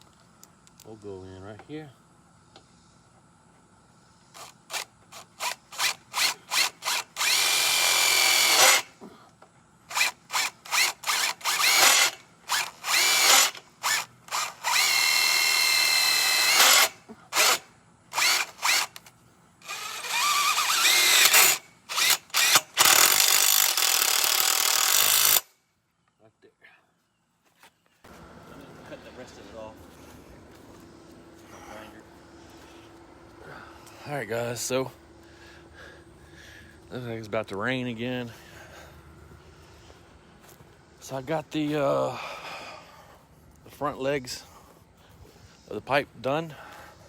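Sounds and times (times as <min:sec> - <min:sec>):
power drill whining: 0:04.3 - 0:08.9, 0:09.9 - 0:25.5.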